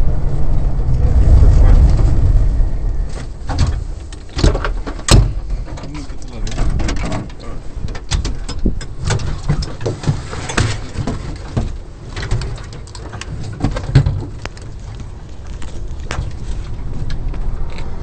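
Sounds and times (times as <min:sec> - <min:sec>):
engine knocks and clatters: 0:00.0 - 0:18.0.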